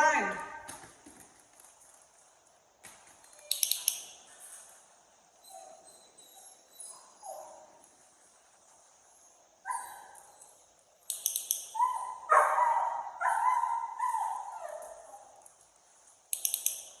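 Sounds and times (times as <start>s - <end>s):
sharp high clicks: 3.4s - 4.2s, 11.0s - 11.9s, 16.3s - 17.0s.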